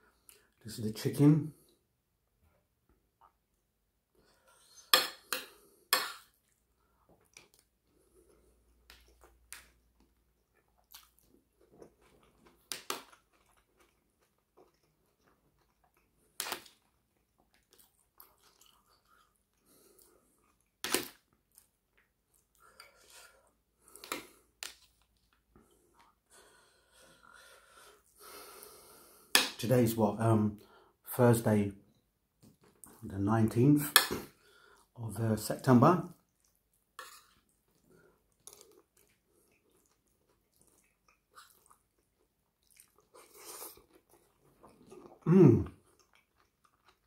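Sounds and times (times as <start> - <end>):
person chewing food: 4.2 - 29.4, 36.2 - 47.0.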